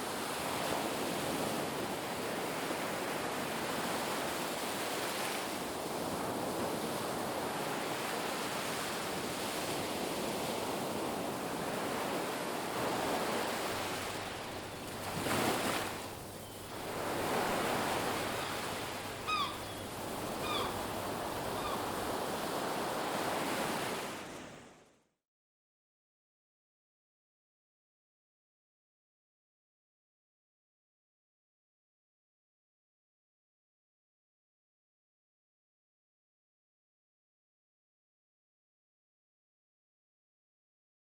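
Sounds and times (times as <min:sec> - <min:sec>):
ocean waves breaking on beach: 0:00.0 - 0:24.8
bird calling: 0:17.3 - 0:22.1.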